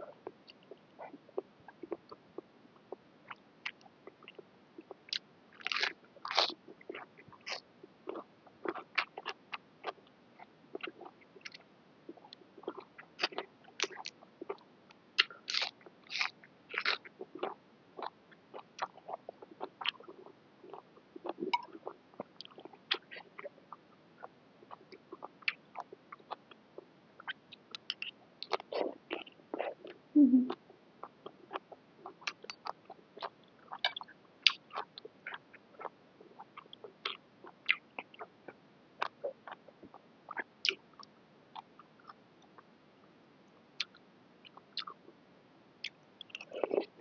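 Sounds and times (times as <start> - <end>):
person chewing and crunching: 5.1 - 10.0, 15.2 - 19.1, 46.3 - 46.9.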